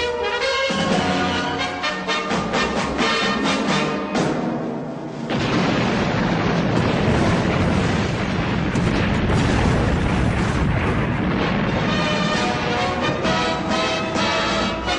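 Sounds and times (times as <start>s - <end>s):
explosion rumbling roar: 5.3s - 14.6s.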